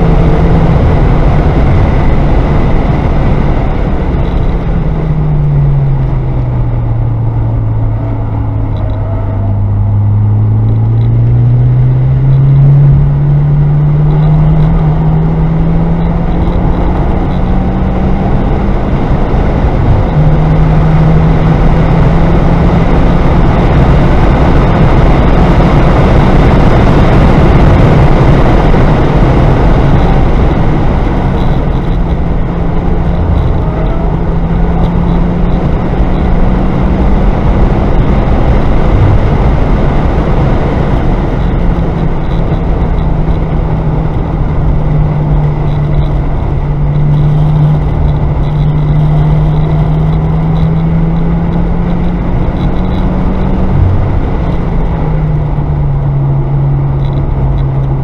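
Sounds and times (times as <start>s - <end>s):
car engine: 0.0s - 58.0s
road noise inside car: 0.0s - 58.0s.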